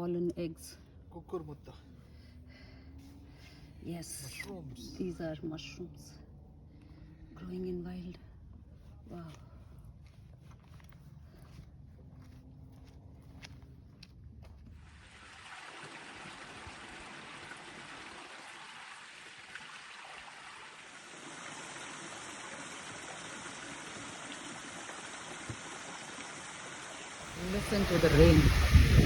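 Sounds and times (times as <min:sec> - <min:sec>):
steady rainfall: 0:15.2 - 0:29.0.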